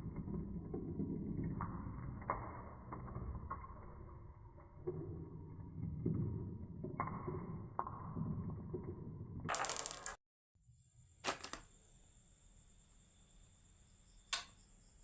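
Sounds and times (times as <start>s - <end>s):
marble clacks: 0.0s - 10.2s
marbles rolling on wooden track: 0.0s - 10.2s
marbles rattling: 9.5s - 10.2s.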